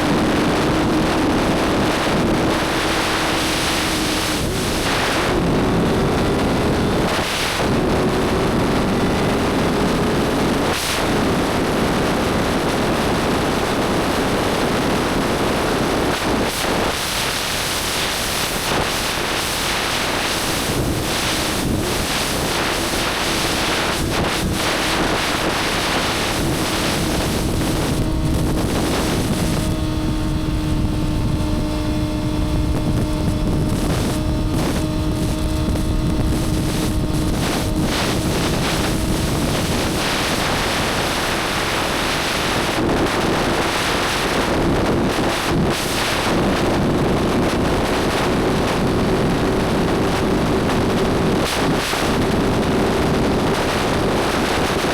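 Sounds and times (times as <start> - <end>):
motorcycle engine cruising: 0.0 - 16.4, 18.5 - 45.6
wind rushing on microphone: 0.0 - 54.9.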